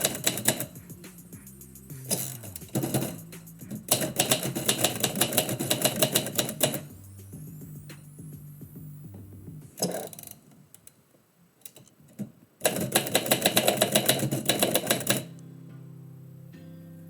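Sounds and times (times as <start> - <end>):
typewriter keys striking: 0.0 - 0.8, 2.1 - 6.9, 12.6 - 15.3.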